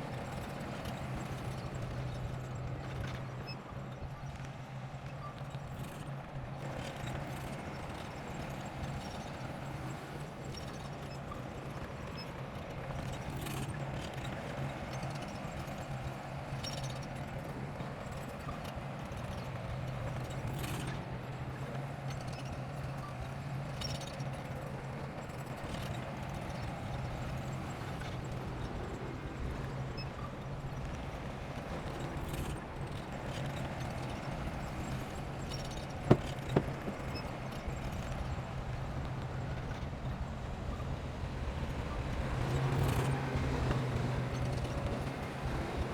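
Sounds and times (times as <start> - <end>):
diesel engine clattering: 23.4 - 45.9.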